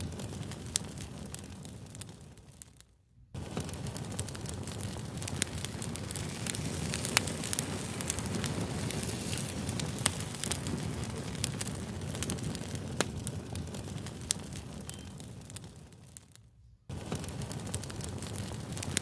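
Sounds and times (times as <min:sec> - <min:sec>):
fire crackling and popping: 0:00.0 - 0:19.0
low rumble of flames: 0:00.0 - 0:19.0.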